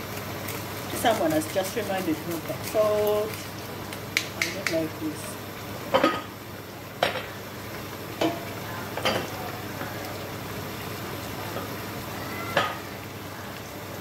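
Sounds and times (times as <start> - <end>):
meat and vegetables sizzling in pot: 0.0 - 14.0
utensils knocking against pot: 9.0 - 9.3.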